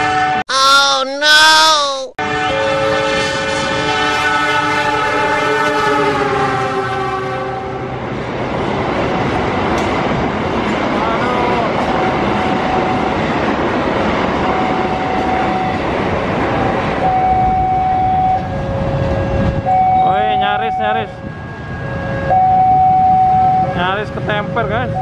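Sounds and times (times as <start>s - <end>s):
locomotive horn: 0.0s - 0.5s, 2.2s - 8.0s, 11.0s - 13.3s, 14.4s - 16.1s, 17.0s - 25.0s
train wheels rumbling on rails: 2.7s - 20.5s.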